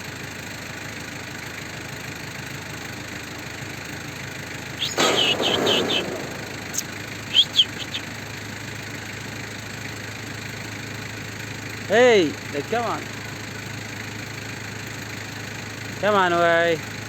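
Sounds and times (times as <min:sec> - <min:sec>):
engine idling: 0:00.0 - 0:17.0
rustling with high squeaks: 0:04.8 - 0:08.0
squeaky chirps: 0:04.8 - 0:08.1.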